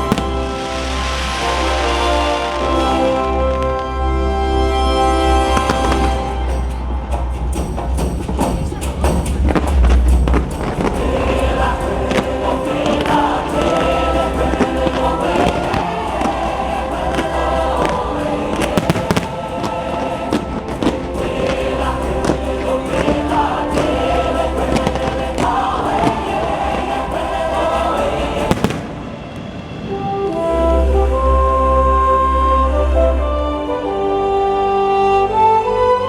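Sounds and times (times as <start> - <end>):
fireworks bursting: 0.0 - 4.0, 5.4 - 6.4, 9.4 - 30.3
orchestral music with choir: 0.0 - 36.0.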